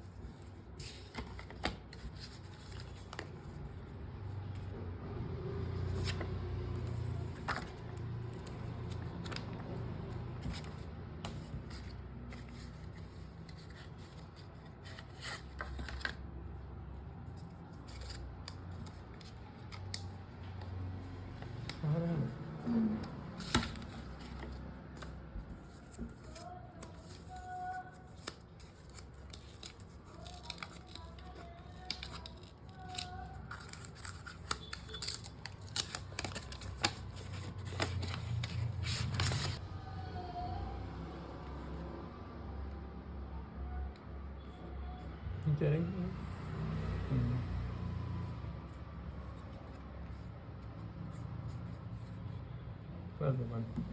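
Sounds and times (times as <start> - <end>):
packaging clicks and crinkles: 25.7 - 39.6.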